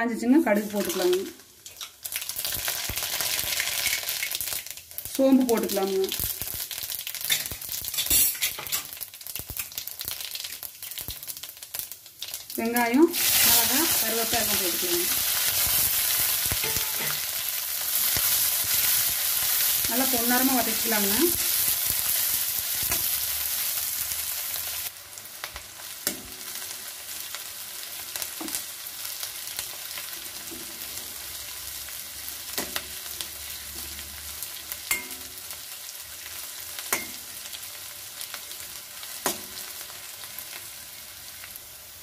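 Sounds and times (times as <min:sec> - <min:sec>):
shallots sizzling in hot oil: 0:00.1 - 0:42.0
metal spoon scraping a pan: 0:07.2 - 0:09.0, 0:16.5 - 0:17.3.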